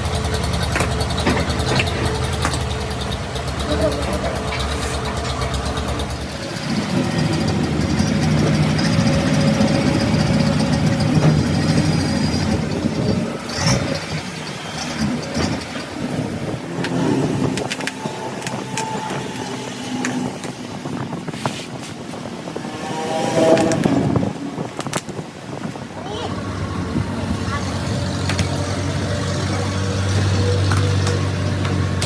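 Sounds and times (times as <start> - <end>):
engine running: 0.0 - 32.0.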